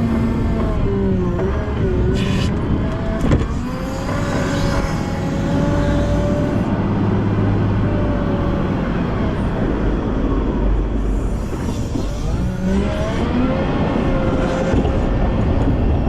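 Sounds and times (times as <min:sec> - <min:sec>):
diesel engine running: 0:00.0 - 0:16.0
whine wavering in pitch: 0:00.0 - 0:16.0.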